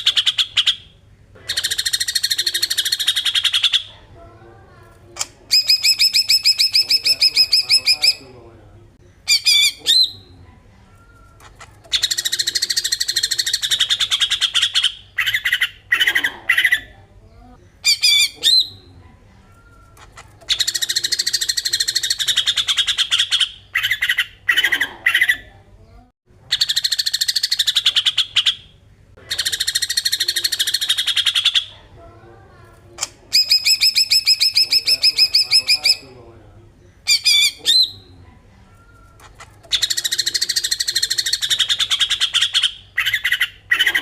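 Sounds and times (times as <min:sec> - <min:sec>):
sharp bird calls: 0:00.0 - 0:04.0, 0:05.5 - 0:08.4, 0:11.4 - 0:16.9, 0:20.0 - 0:25.5, 0:26.4 - 0:31.8, 0:33.0 - 0:36.2, 0:37.0 - 0:38.1, 0:39.2 - 0:44.0
bird rattling song: 0:05.5 - 0:08.2, 0:33.0 - 0:36.1.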